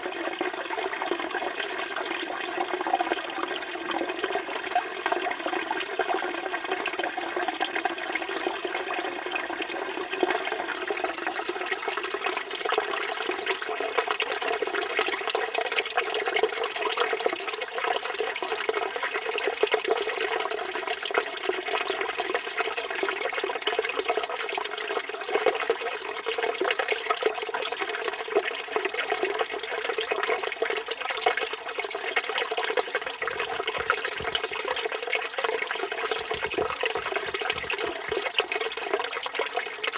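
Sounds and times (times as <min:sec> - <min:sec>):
fountain water splashing into basin: 0:10.5 - 0:39.9.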